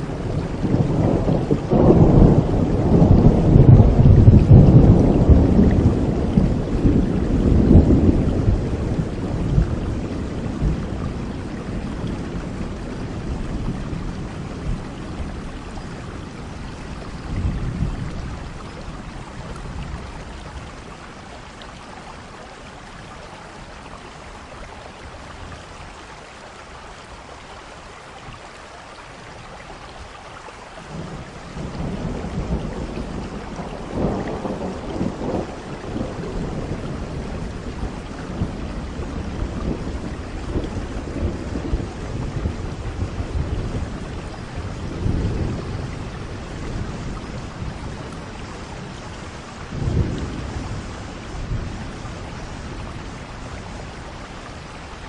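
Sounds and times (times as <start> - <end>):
thunder rolling: 0.0 - 20.1, 30.9 - 54.0
steady rain: 0.0 - 55.0.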